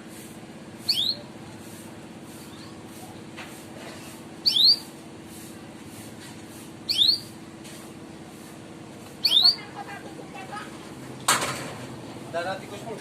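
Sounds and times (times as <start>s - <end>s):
canary chirping: 0.8s - 1.3s, 4.4s - 4.9s, 6.8s - 7.4s, 9.2s - 9.8s.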